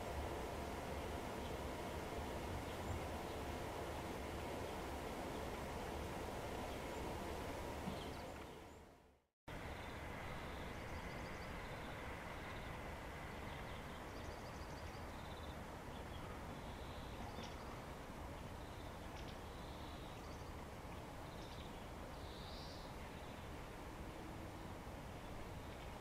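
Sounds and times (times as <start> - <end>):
steady low background hum: 0.0 - 9.0
small birds chirping faintly: 0.0 - 26.0.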